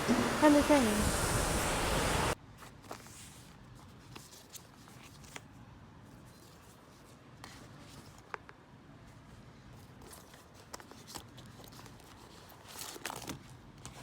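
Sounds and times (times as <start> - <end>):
loud steady hiss: 0.0 - 2.4.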